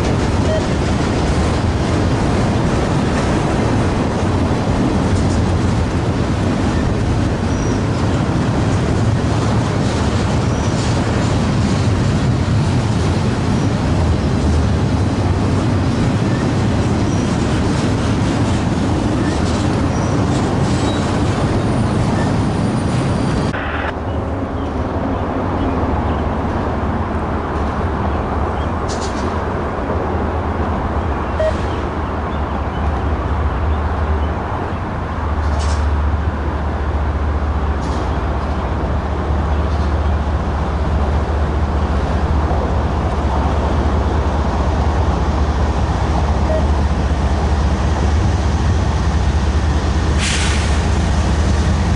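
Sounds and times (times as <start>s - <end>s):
freight train rumbling by: 0.0s - 51.9s
faint train clicks: 26.0s - 29.6s, 35.3s - 36.1s.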